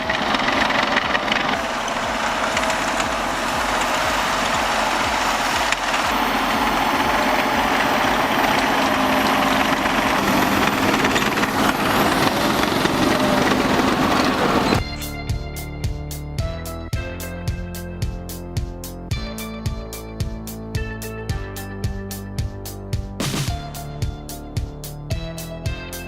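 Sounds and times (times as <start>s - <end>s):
snow-clearing machine engine: 0.0s - 14.8s.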